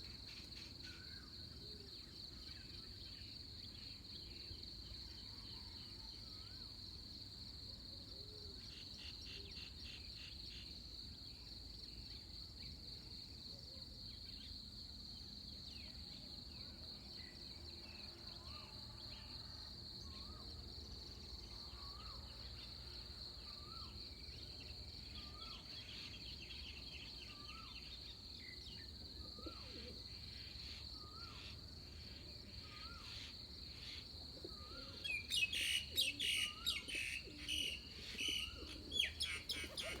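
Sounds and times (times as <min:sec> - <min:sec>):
insects trilling: 0:14.1 - 0:40.0.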